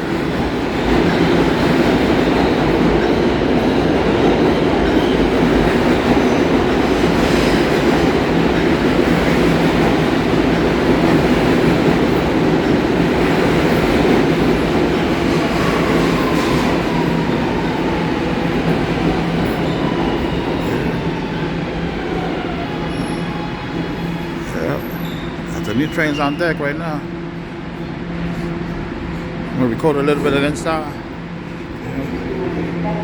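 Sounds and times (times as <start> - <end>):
subway train wheels on rails: 0.0 - 33.0
faint falling squeal: 22.6 - 26.8.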